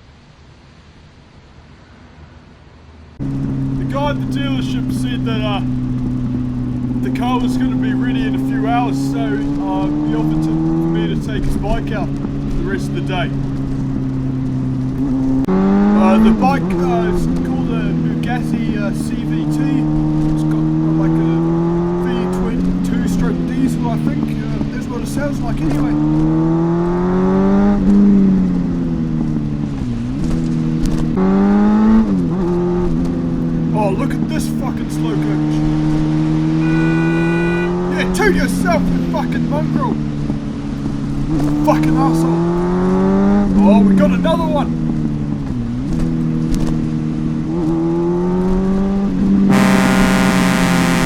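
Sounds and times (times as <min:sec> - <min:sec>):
vehicle engine running: 0:03.2 - 0:51.0
horn blaring: 0:15.8 - 0:19.7, 0:36.5 - 0:40.0, 0:49.5 - 0:51.0.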